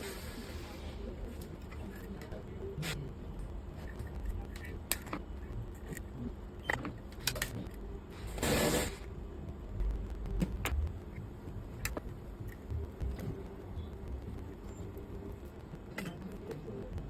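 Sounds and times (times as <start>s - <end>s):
low steady hum: 0.0s - 17.0s
small tools clicking and tapping: 3.8s - 7.8s.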